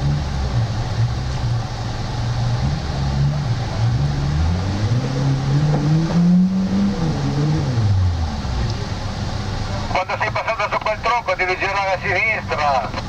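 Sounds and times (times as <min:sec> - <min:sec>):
off-road vehicle engines revving: 0:00.0 - 0:13.0.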